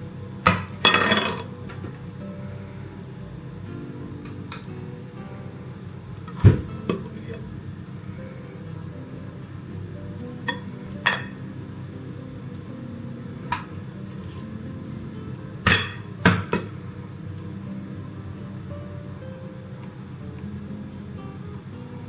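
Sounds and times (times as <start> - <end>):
soft background music: 0.0 - 22.0
kitchenware knocking and clinking: 0.5 - 1.5, 15.7 - 16.7.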